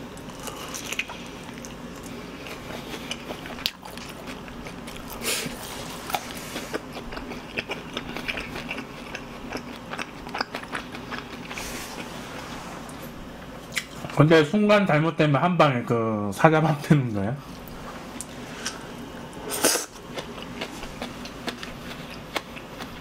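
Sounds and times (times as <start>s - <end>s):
chewing crunchy chicken: 0.1s - 12.2s, 17.6s - 23.0s.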